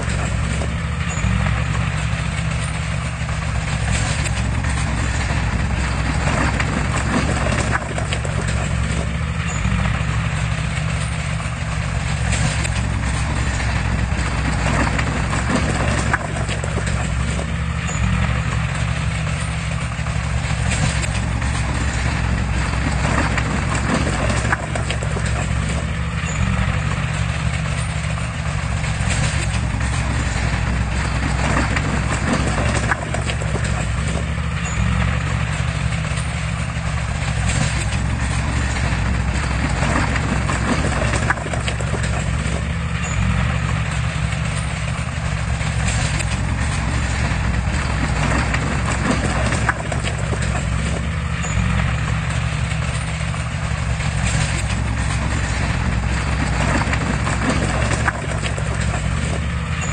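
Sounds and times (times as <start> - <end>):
diesel engine running: 0.0 - 59.9
knocks and clanks: 0.0 - 59.9.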